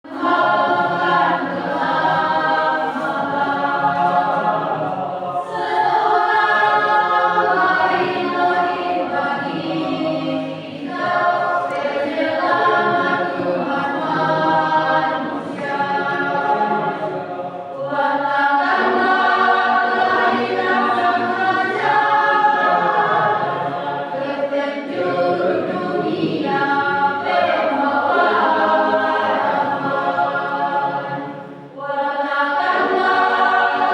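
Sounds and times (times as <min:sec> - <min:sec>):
choir singing a cappella: 0:00.0 - 0:33.9.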